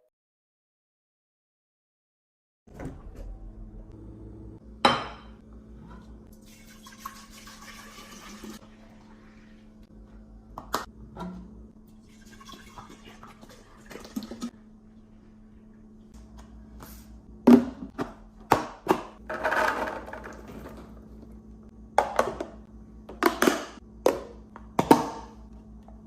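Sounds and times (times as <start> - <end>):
liquid pouring into container: 6.3 - 8.7, 12.0 - 14.5.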